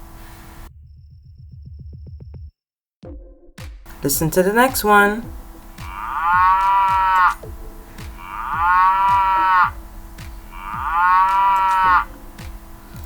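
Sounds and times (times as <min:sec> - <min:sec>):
cow mooing: 0:05.7 - 0:07.4, 0:08.2 - 0:09.8, 0:10.5 - 0:12.4.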